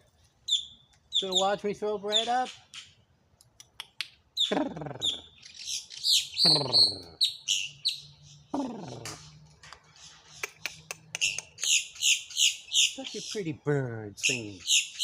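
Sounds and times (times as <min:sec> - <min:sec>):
bird drawn-out falling calls: 0:04.4 - 0:13.4.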